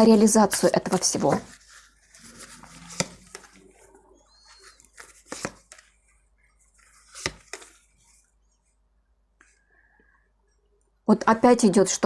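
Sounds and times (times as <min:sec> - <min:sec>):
cards slapping and rustling: 0:00.8 - 0:03.7, 0:04.6 - 0:06.0, 0:06.7 - 0:08.0.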